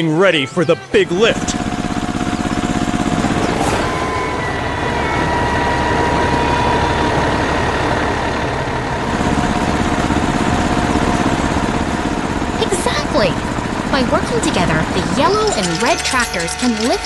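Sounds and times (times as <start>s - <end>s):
heavy vehicle engine idling: 1.2s - 17.0s
thin whine: 12.0s - 17.0s.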